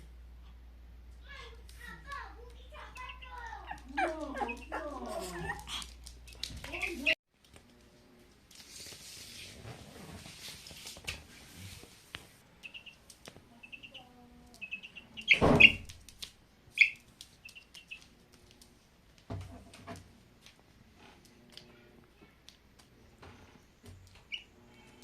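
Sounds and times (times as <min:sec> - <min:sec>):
chicks cheeping: 0:12.6 - 0:13.0, 0:13.6 - 0:15.9, 0:16.8 - 0:18.0, 0:24.2 - 0:25.0.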